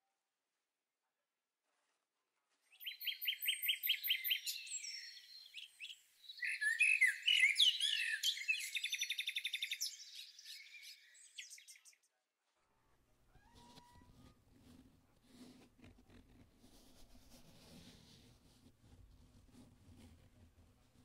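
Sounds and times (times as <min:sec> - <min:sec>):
songbird singing: 0:02.7 - 0:12.0.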